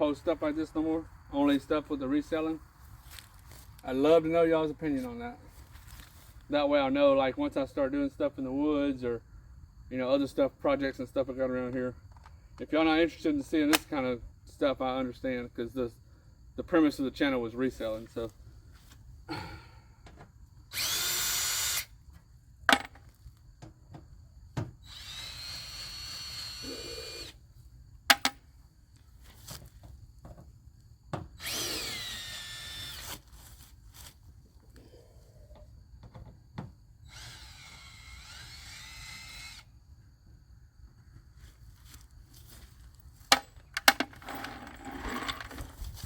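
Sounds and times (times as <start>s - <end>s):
cordless drill motor whine: 20.7s - 22.0s, 24.8s - 27.4s, 31.4s - 33.2s, 37.0s - 39.7s.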